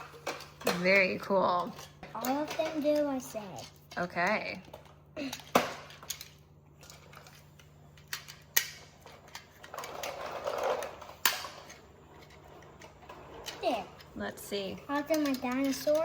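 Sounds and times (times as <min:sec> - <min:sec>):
magnetic toy pieces snapping together: 0:08.0 - 0:09.4.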